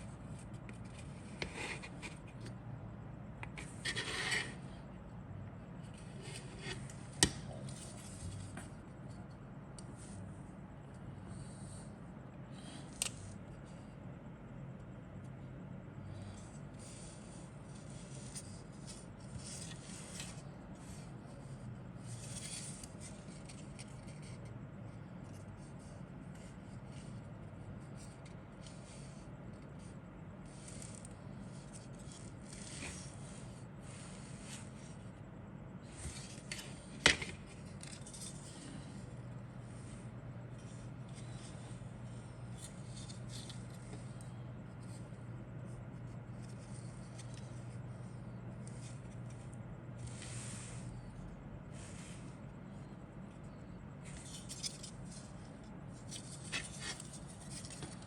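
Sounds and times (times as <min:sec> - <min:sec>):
plastic parts rustling and scraping: 0:35.8 - 0:45.1, 0:48.7 - 0:58.0.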